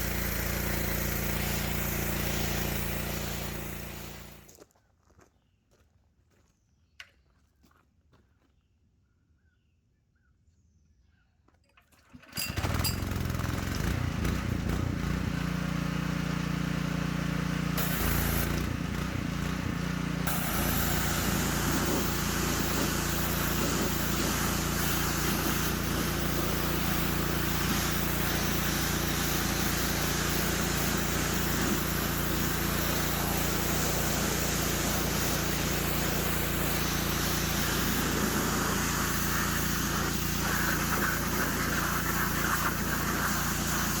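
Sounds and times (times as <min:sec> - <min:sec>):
pressure washer engine running: 0:00.0 - 0:04.5, 0:12.1 - 0:44.0
broad steady hiss: 0:20.3 - 0:44.0.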